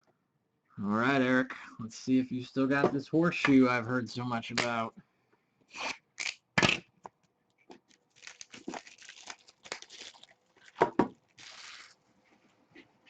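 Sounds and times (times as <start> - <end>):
wrapper crinkling: 7.8 - 12.2
packaging tearing: 7.9 - 12.0.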